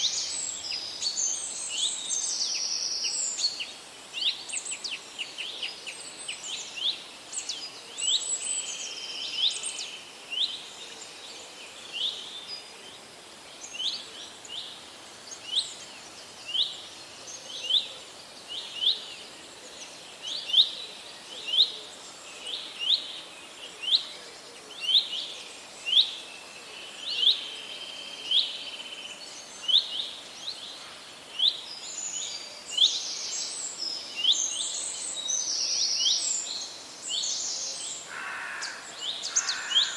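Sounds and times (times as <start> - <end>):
birds chirping: 35.8 - 39.9.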